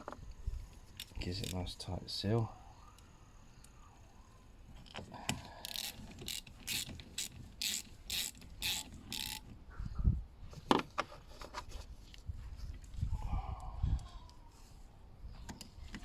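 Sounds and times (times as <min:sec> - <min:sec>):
ratchet wrench rasping: 0:00.7 - 0:01.8, 0:05.3 - 0:09.5.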